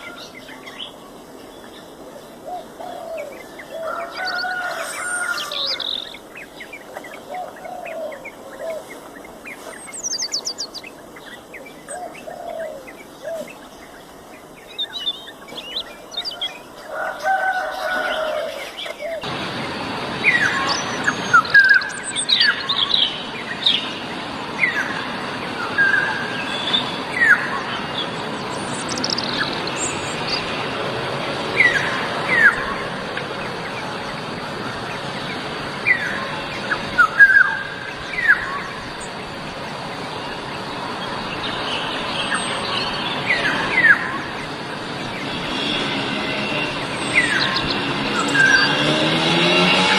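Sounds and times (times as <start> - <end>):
steady outdoor hiss: 0.0 - 49.9
oriole whistled calls: 1.6 - 19.2, 20.2 - 24.0.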